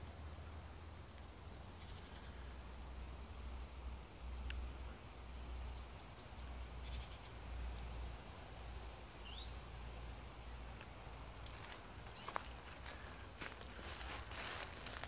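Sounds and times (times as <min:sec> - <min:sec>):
small bird chirping: 0:05.7 - 0:07.4, 0:08.8 - 0:09.6, 0:11.5 - 0:14.6.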